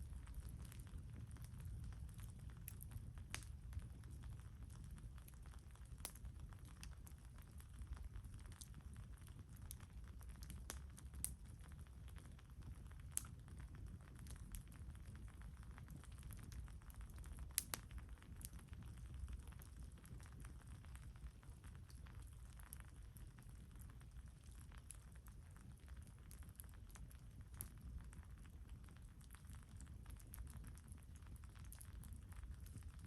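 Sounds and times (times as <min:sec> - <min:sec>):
campfire crackling: 0:00.0 - 0:33.0
low steady rumble: 0:00.0 - 0:33.0.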